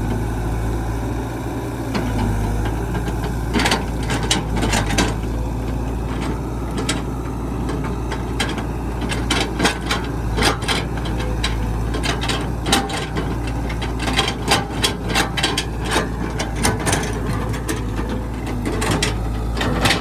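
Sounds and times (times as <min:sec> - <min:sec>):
excavator engine running: 0:00.0 - 0:20.0
machine clanks and knocks: 0:07.8 - 0:20.0.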